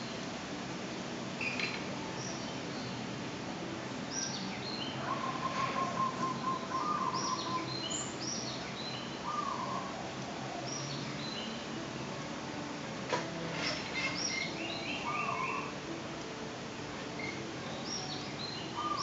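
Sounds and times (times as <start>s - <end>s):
small birds chirping: 4.1s - 9.8s, 17.2s - 19.0s.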